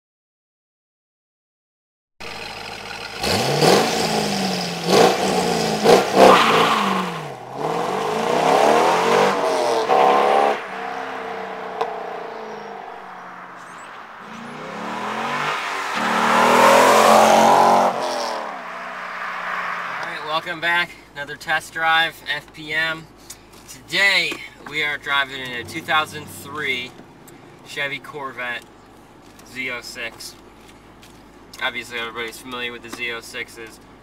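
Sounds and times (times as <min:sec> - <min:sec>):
sports car accelerating past: 0:03.2 - 0:20.3.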